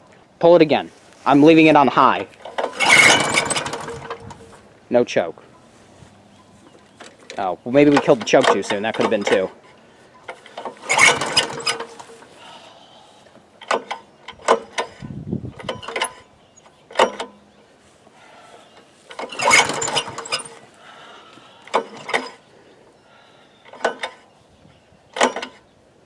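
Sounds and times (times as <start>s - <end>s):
lawnmower pull-cord starter: 1.9s - 4.7s, 7.0s - 12.6s, 13.6s - 17.5s, 18.8s - 20.8s, 21.6s - 22.5s, 23.6s - 24.3s, 25.2s - 25.7s
clicks and rattles: 2.1s - 4.6s, 6.9s - 12.3s, 13.6s - 17.5s, 19.1s - 20.7s, 21.7s - 22.4s, 23.7s - 24.2s, 25.2s - 25.6s.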